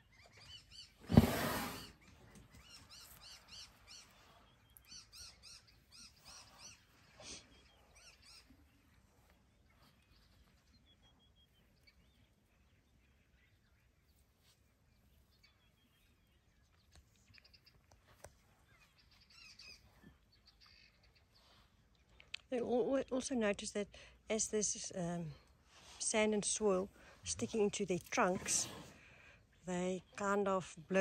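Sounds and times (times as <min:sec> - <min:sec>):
faint bird chirps: 0:01.8 - 0:22.4.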